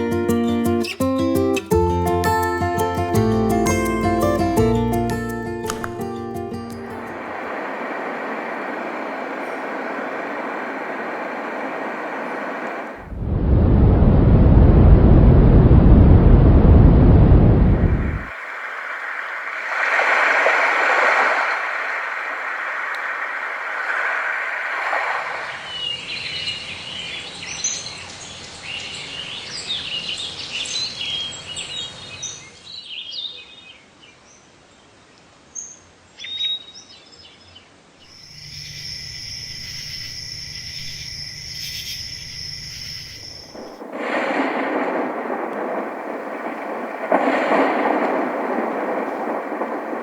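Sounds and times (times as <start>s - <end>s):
rain-like hiss: 6.7s - 13.4s, 17.6s - 50.0s
low hum: 6.8s - 18.3s
birdsong: 35.6s - 43.8s
steady high-pitched tones: 38.1s - 43.8s.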